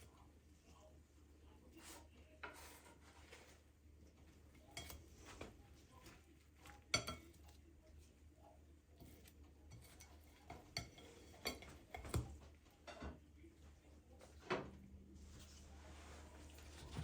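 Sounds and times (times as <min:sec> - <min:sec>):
dishes and utensils clinking: 0:04.6 - 0:07.6, 0:09.0 - 0:13.3.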